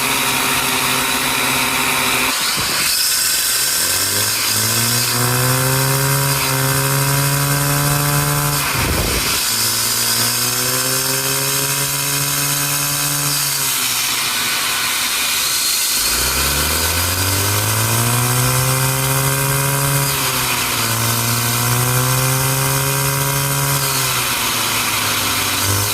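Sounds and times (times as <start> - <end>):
small turbine whining: 0.0 - 25.9.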